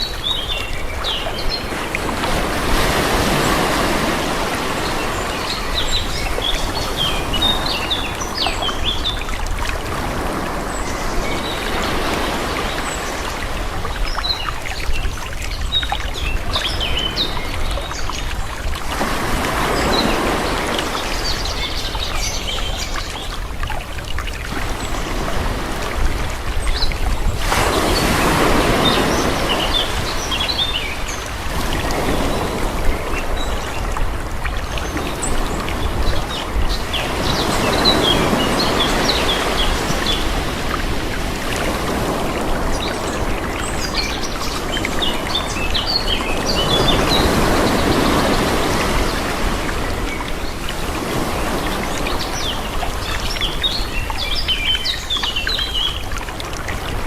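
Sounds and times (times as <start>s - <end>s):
calm sea waves washing: 0.0s - 57.0s.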